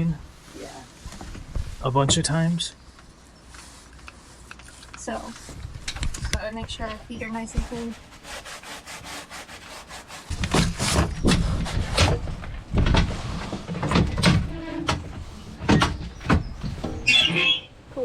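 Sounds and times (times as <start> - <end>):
shoe soles scrubbing on brushes: 7.2 - 10.3.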